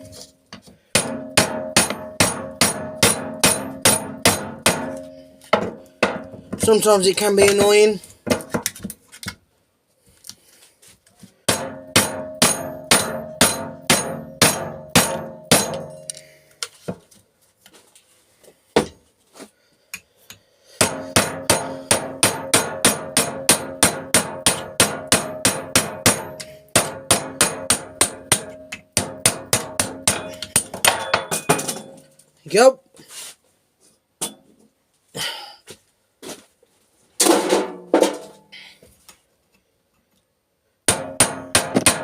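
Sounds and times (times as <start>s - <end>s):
hammer pounding on metal: 0.9s - 6.6s, 11.5s - 16.1s, 20.8s - 32.0s, 40.9s - 42.0s.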